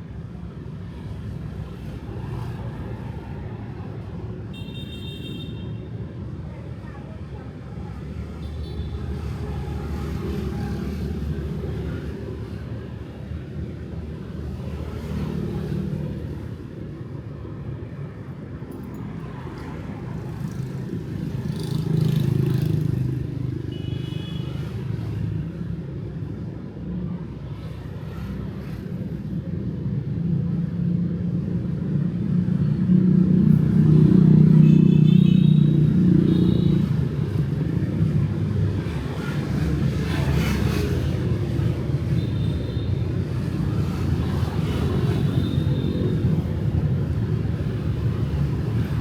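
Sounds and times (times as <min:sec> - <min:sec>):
traffic rumble: 0:25.3 - 0:49.0.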